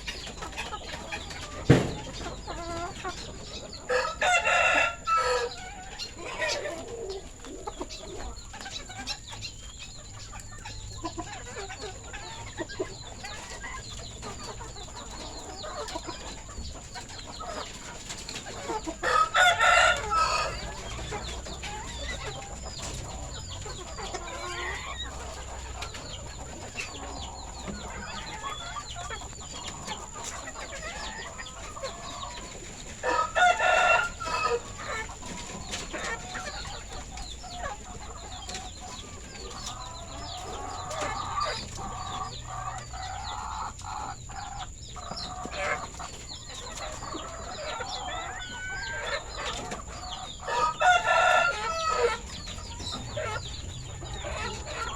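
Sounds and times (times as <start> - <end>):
chickens clucking: 0.0 - 54.9
rooster crowing: 3.9 - 6.6, 19.0 - 20.8, 33.0 - 35.0, 50.4 - 52.3.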